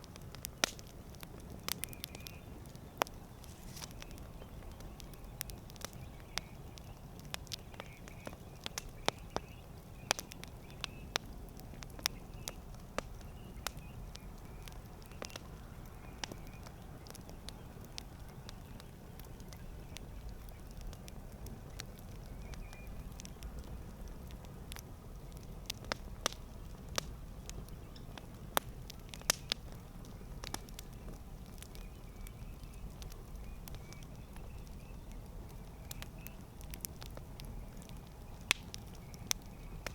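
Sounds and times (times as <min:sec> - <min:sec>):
burning wood popping: 0:00.0 - 0:39.9
flames rumbling: 0:00.0 - 0:39.9.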